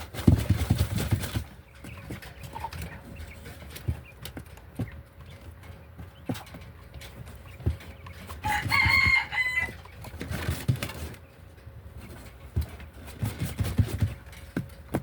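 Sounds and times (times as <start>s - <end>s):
rooster crowing: 8.4s - 9.9s.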